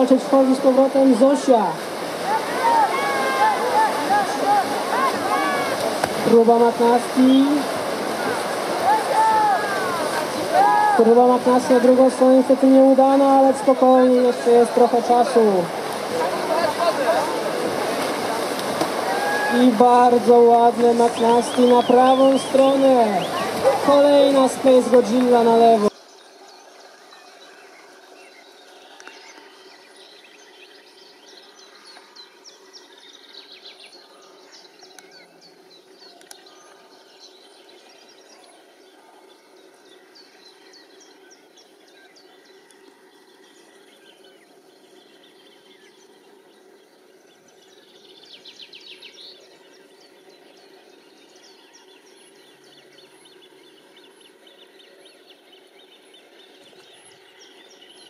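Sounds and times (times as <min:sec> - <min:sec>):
birds chirping and calling: 0:18.8 - 0:58.0.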